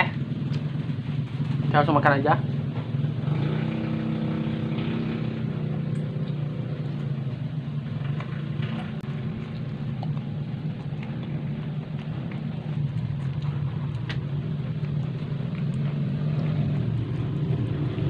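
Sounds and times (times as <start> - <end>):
low motor drone: 0.0 - 18.0
person chewing: 5.8 - 18.0.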